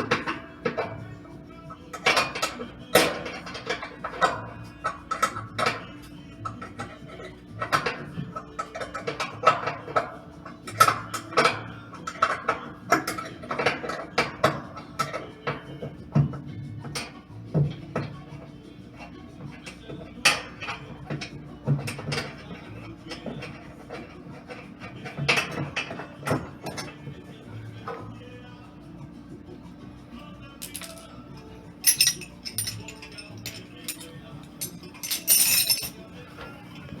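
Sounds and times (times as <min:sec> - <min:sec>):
metal parts clinking: 0:30.6 - 0:31.1, 0:31.8 - 0:36.1.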